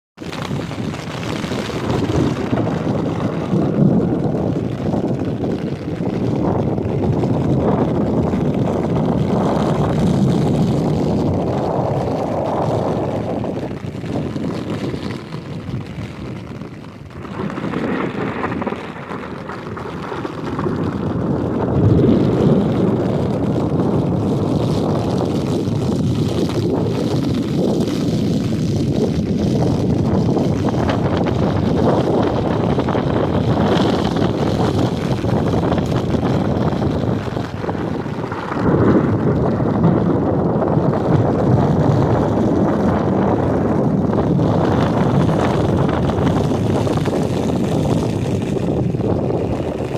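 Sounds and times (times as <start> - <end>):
strong wind buffeting microphone: 0.2 - 49.9.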